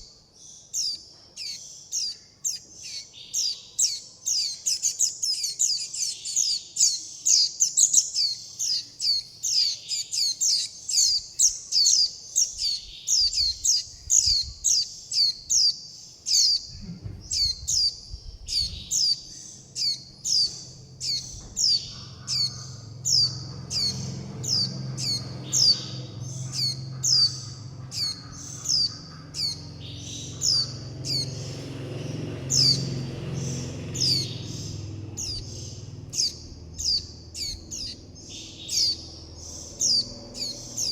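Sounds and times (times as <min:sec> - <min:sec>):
young bird high call notes: 0:18.6 - 0:31.8.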